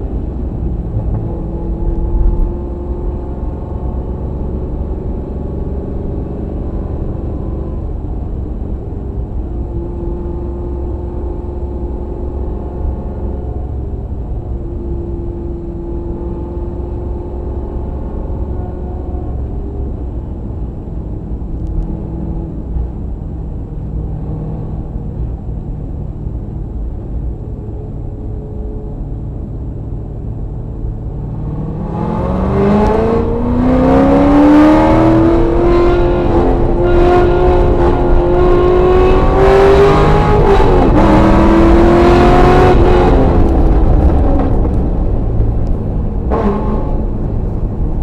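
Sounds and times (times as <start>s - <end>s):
rushing wind noise: 0.0s - 4.3s, 31.1s - 48.0s
sports car engine accelerating: 0.0s - 48.0s.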